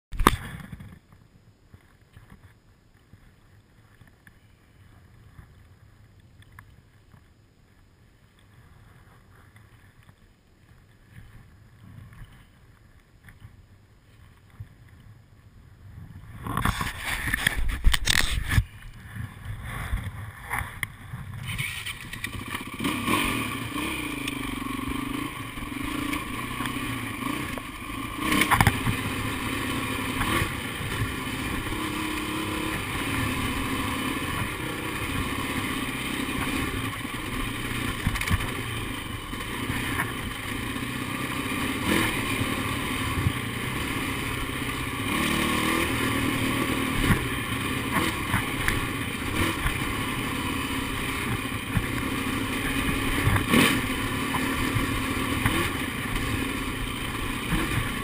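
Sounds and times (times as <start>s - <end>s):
dirt bike engine revving: 21.4s - 58.0s.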